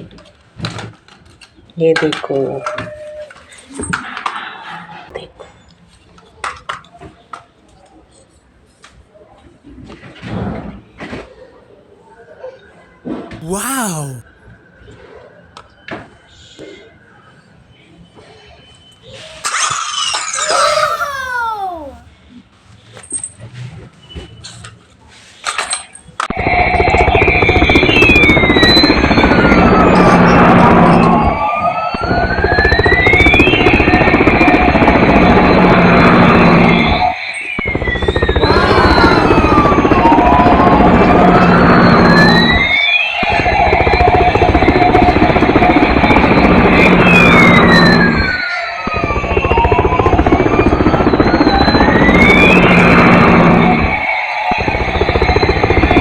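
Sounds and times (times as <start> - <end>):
toy helicopter rotor sound: 38.3 - 40.0.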